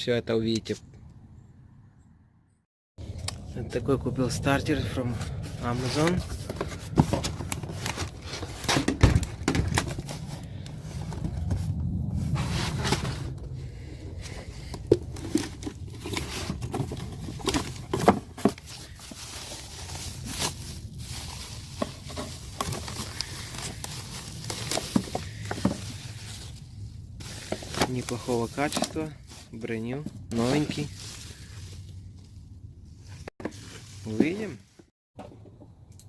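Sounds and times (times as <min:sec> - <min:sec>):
plastic packaging crinkling: 0:15.0 - 0:29.6.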